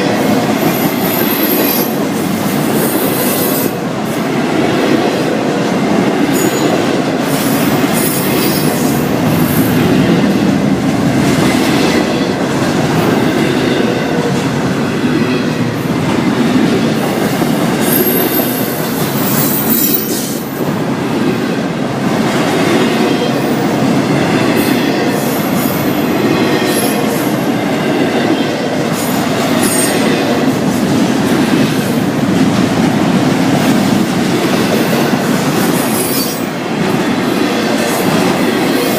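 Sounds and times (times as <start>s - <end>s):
freight cars rumbling: 3.7s - 19.7s.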